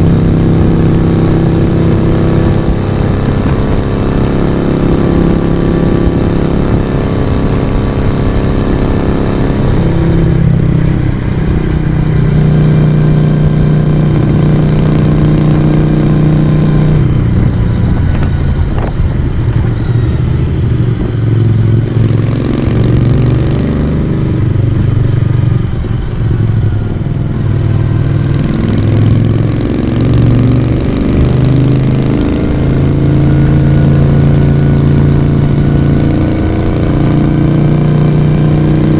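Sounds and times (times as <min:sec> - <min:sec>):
motorcycle engine and exhaust: 0:00.0 - 0:38.9.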